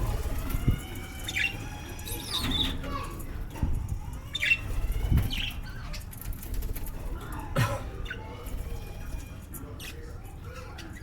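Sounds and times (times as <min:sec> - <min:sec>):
wings fluttering: 0:00.0 - 0:07.3.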